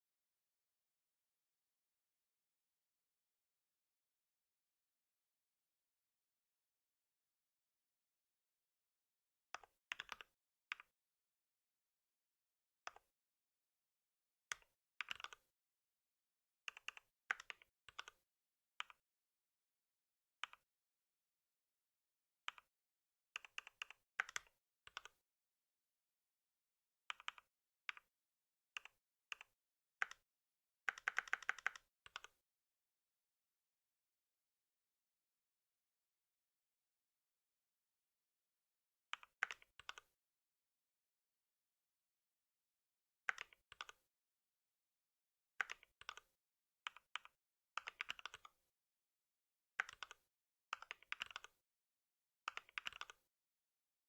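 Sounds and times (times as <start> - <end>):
computer keyboard typing: 10.0 - 10.3, 23.6 - 25.1, 30.9 - 32.3, 46.9 - 48.5, 49.8 - 50.2, 50.8 - 51.5, 52.5 - 53.2.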